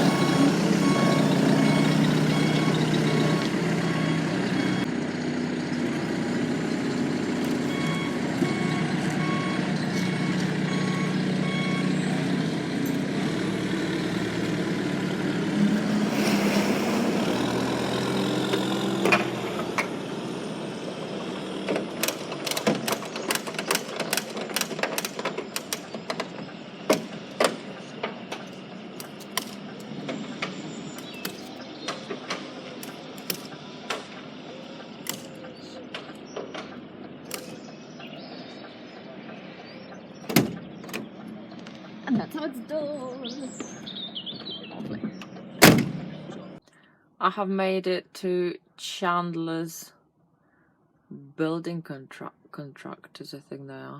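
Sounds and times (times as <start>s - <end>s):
reversing alarm beeping: 0.0s - 4.9s, 6.9s - 12.3s
diesel engine: 0.0s - 47.0s
air hiss: 15.9s - 17.8s
sharp clicks and knocks: 21.6s - 34.2s, 35.0s - 37.7s.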